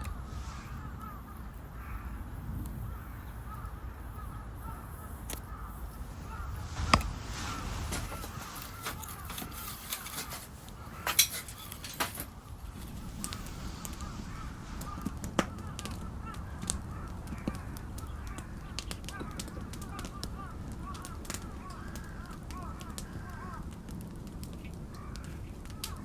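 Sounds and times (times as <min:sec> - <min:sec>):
birds calling: 0:00.0 - 0:23.6
wood fire crackling and popping: 0:05.3 - 0:26.0.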